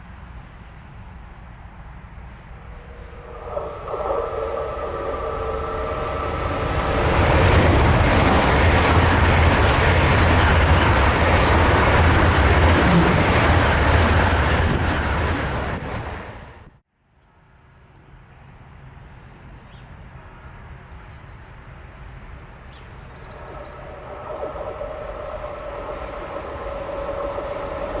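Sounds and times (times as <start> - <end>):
train passing at speed: 0.0 - 16.8, 21.9 - 28.0
steady background noise: 17.4 - 28.0.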